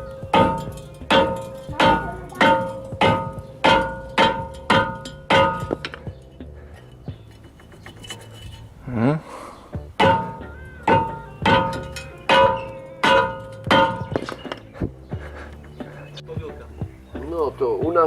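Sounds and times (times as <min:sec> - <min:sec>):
hammer striking brake disc: 0:00.0 - 0:06.3, 0:10.0 - 0:14.6.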